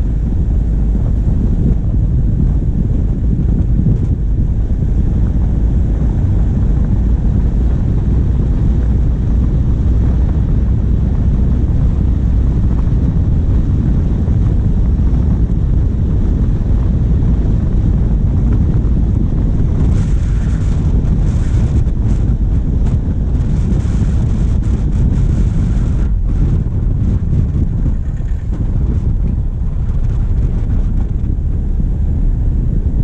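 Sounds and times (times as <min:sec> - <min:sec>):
diesel engine running: 0:00.0 - 0:33.0
wind buffeting microphone: 0:00.0 - 0:33.0.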